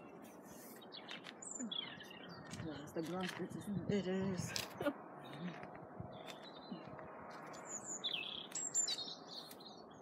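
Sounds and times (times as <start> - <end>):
small songbirds chirping: 0.0 - 10.0.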